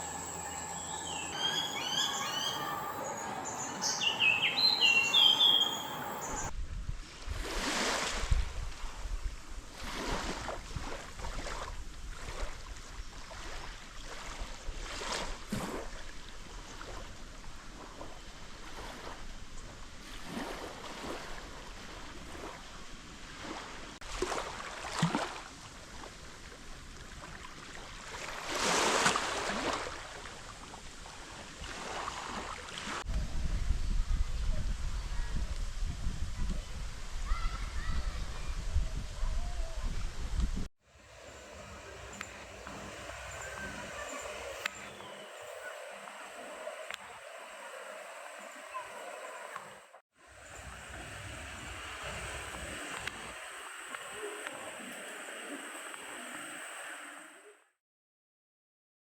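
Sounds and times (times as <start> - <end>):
birds chirping: 0.0 - 6.5, 41.0 - 53.4
steady rushing noise: 40.9 - 57.3.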